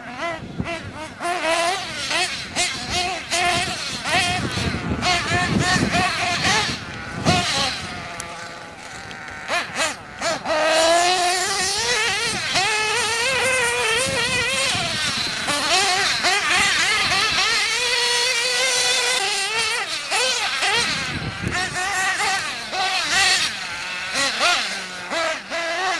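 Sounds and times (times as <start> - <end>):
rc car engines buzzing: 0.0 - 25.9.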